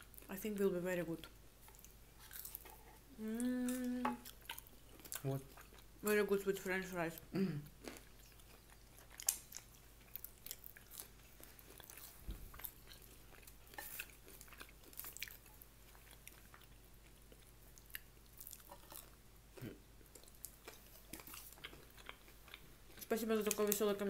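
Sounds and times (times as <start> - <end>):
person chewing and biting food: 1.6 - 3.0, 7.7 - 23.1.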